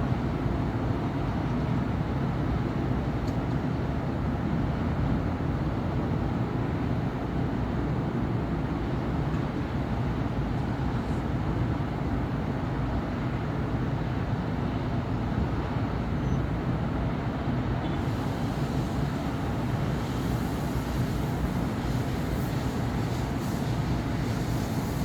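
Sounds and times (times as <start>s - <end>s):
traffic rumble: 16.9s - 25.0s
bright hiss: 18.0s - 25.0s.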